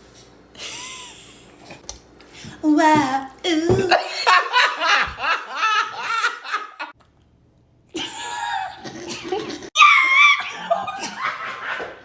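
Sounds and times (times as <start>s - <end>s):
people laughing hard: 4.0s - 6.9s, 10.4s - 12.0s.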